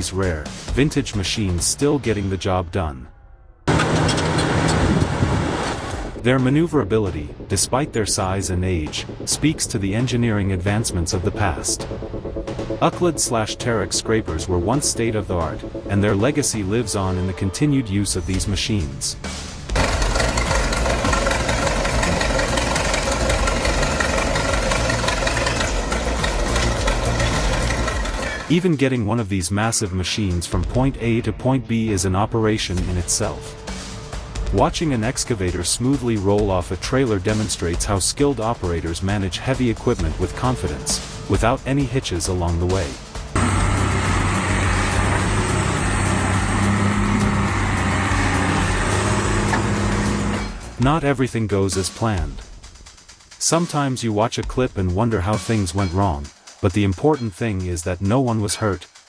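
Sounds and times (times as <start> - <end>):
mechanical din: 3.7 - 6.2, 19.7 - 28.5, 43.3 - 50.9
large diesel engine clattering: 19.8 - 28.5, 42.6 - 50.8.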